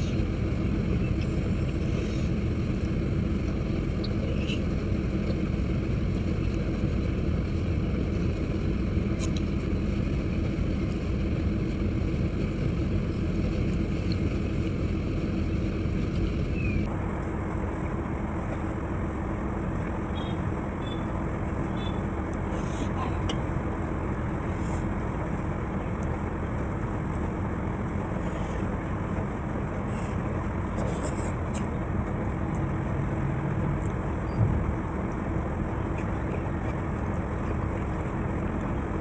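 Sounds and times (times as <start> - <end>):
faint hum: 0.0 - 39.0
low rumbling background noise: 0.0 - 39.0.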